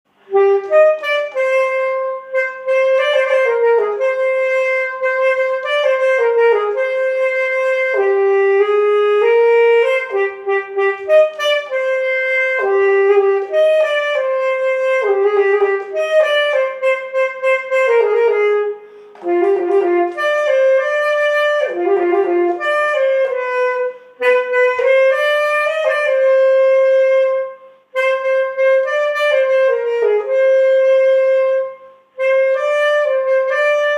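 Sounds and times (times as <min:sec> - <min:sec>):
solo wind instrument melody: 0:00.1 - 0:33.9.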